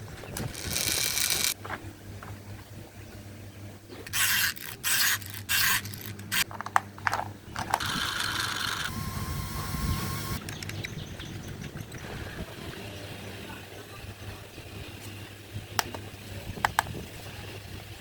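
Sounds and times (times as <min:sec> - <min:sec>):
plastic toys clicking and rattling: 0:00.3 - 0:01.6, 0:04.1 - 0:08.9
plastic toys scraping: 0:00.3 - 0:01.6, 0:04.1 - 0:08.9
toy whirring: 0:00.4 - 0:01.6, 0:04.1 - 0:12.4.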